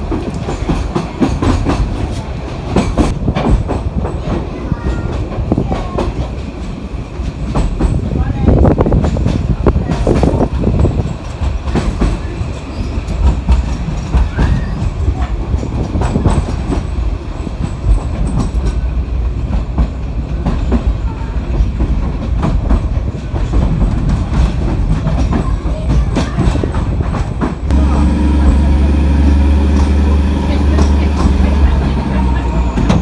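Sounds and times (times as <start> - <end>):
low train rumble: 0.0 - 33.0
train wheels clattering over rail joints: 0.0 - 33.0.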